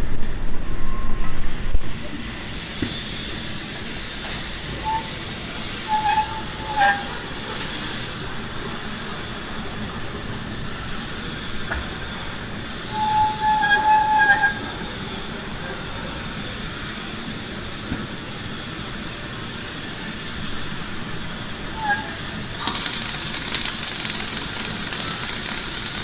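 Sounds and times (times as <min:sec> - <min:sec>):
lower squeal: 0:03.0 - 0:10.1, 0:11.3 - 0:15.2, 0:18.1 - 0:26.0
industrial machine noise: 0:21.8 - 0:26.0.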